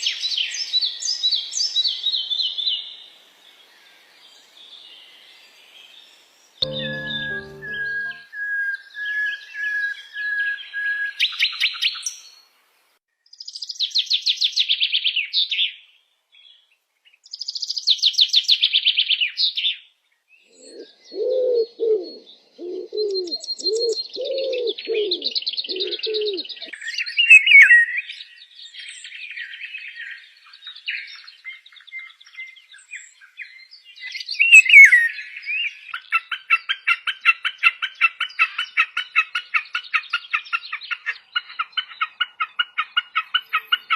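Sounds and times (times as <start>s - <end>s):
birds singing and trilling: 16.4s - 43.9s.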